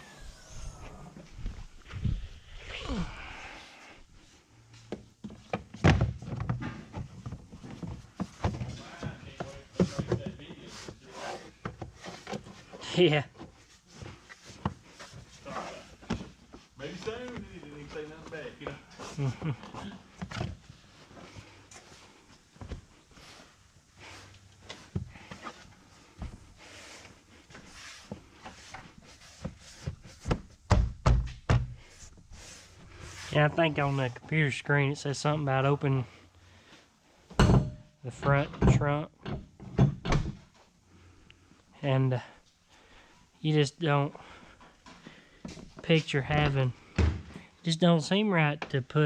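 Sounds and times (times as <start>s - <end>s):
light knocks and thuds: 29.9s - 31.8s
knocks and clunks: 37.3s - 40.6s.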